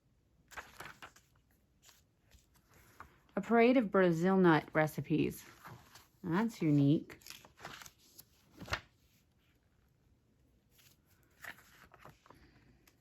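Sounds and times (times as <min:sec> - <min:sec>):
paper pages rustling: 0:00.5 - 0:03.3, 0:05.4 - 0:09.6, 0:10.7 - 0:13.0.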